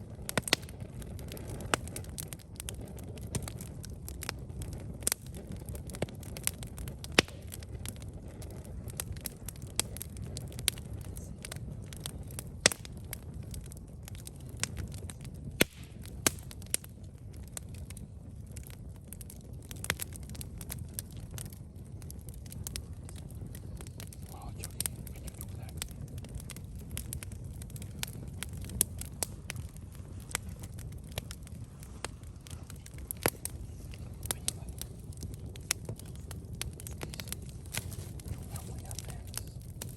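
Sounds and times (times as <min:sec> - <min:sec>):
campfire crackling and popping: 0:00.0 - 0:39.9
low steady rumble: 0:00.0 - 0:39.9.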